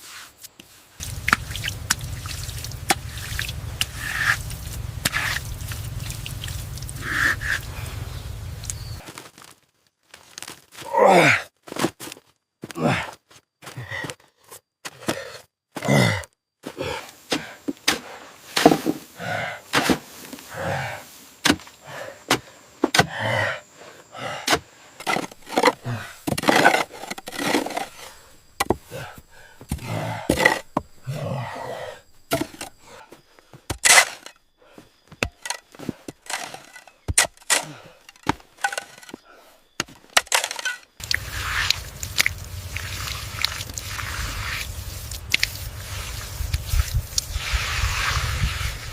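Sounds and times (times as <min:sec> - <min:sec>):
steady rushing noise: 0:01.0 - 0:08.9
wood and stone knocking and scraping: 0:25.0 - 0:31.1, 0:32.2 - 0:32.8, 0:35.0 - 0:39.2, 0:39.8 - 0:42.4.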